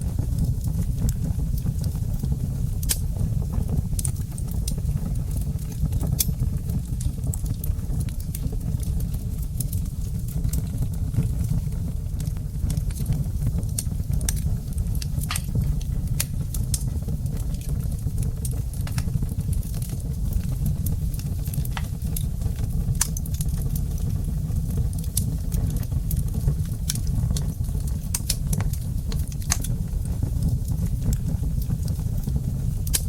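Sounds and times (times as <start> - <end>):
wood fire crackling and popping: 0.0 - 33.0.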